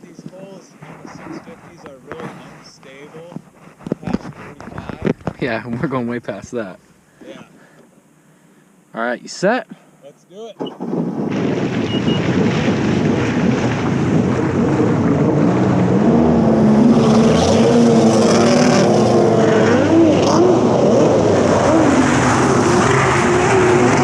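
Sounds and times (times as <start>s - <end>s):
rush of wind and water: 11.1s - 24.0s
jet ski engine at full throttle: 12.0s - 24.0s.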